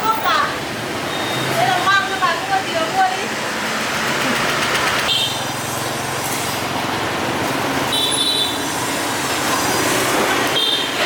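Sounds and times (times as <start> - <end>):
road and wind noise: 0.0 - 11.0
motorbike engine running: 3.7 - 5.7.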